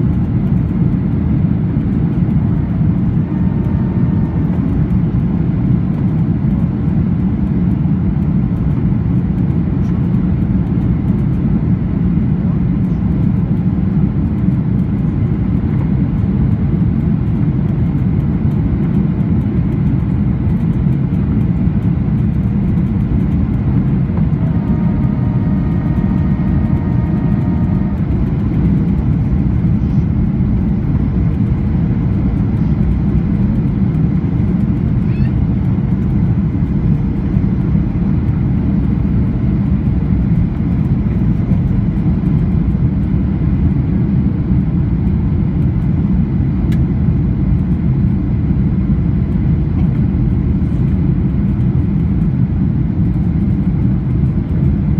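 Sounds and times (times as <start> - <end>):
jet engines droning: 0.0 - 54.9.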